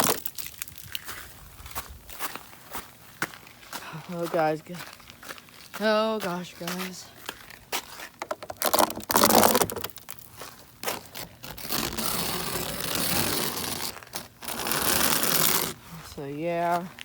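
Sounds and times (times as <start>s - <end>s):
sharp clicks and crunching: 0.0s - 1.3s, 7.3s - 15.8s.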